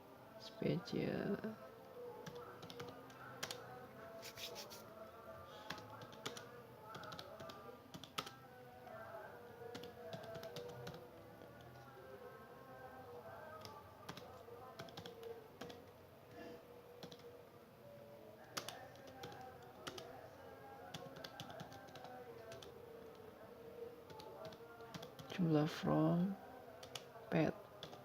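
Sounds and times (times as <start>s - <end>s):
quiet background music: 0.0s - 28.0s
keyboard typing: 2.2s - 3.6s, 5.7s - 8.3s, 9.7s - 11.0s, 13.6s - 15.8s, 17.0s - 17.3s, 18.5s - 20.1s, 20.9s - 23.2s, 24.1s - 25.3s, 26.8s - 27.1s, 27.8s - 28.0s.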